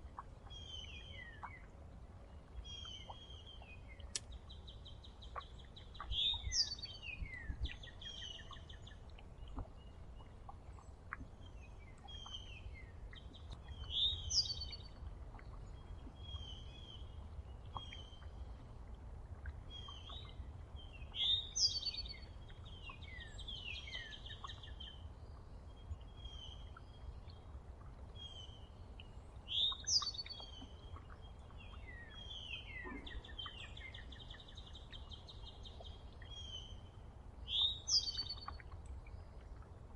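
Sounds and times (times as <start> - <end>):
soft bird chirps: 0.0 - 18.6, 19.7 - 39.7.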